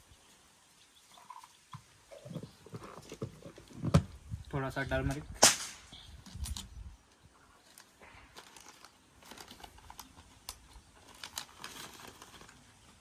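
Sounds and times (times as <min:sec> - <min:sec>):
light crinkling: 0:05.1 - 0:13.0.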